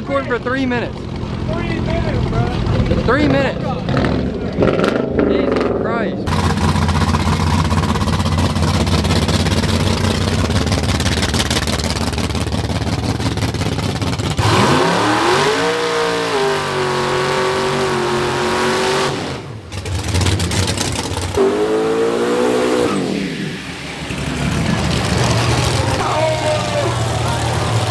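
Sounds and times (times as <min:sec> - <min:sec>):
vehicle engine revving hard: 0:06.3 - 0:27.9.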